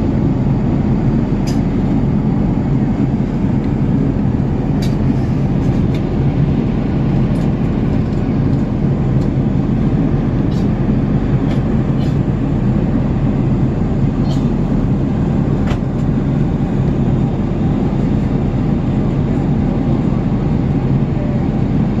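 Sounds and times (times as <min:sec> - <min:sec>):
aircraft cabin engine rush: 0:00.0 - 0:22.0.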